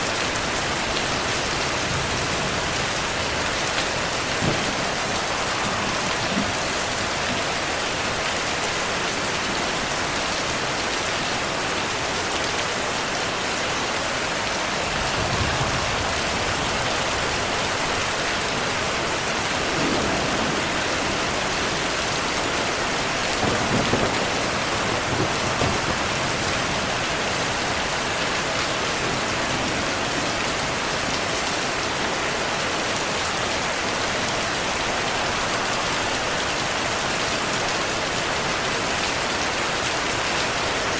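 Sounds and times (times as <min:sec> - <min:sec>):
heavy rain: 0:00.0 - 0:40.9
thunder rolling: 0:01.5 - 0:08.2, 0:14.7 - 0:27.3.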